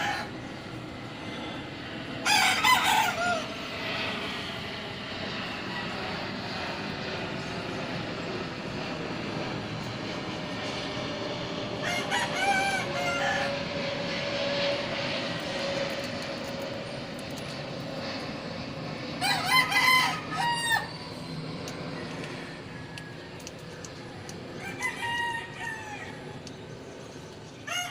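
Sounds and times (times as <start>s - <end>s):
rooster crowing: 0.0s - 0.4s, 2.2s - 3.6s, 11.8s - 13.6s, 19.2s - 21.0s, 22.0s - 23.4s, 24.6s - 26.4s, 27.6s - 27.9s
steady background noise: 0.0s - 27.9s.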